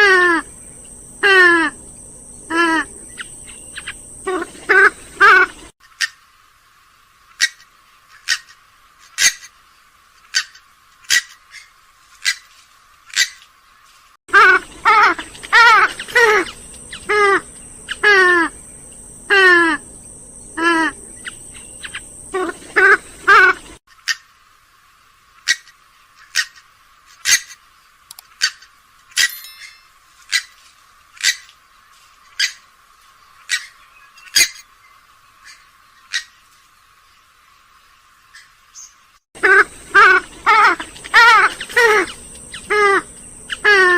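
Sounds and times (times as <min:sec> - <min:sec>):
harsh wavering bird call: 0:39.4 - 0:43.9.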